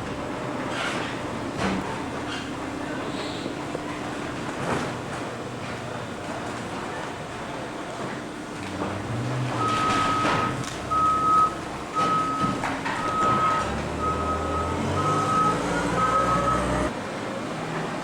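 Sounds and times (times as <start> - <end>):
engine running: 8.4 - 17.0
backup alarm beeping: 9.6 - 16.9.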